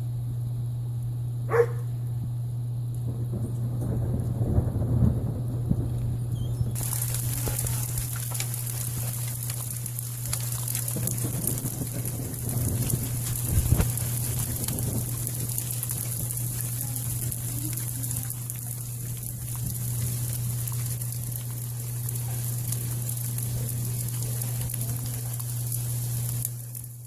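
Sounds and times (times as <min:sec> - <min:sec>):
low hum: 0:00.0 - 0:27.0
hail crackling patter: 0:02.9 - 0:27.0.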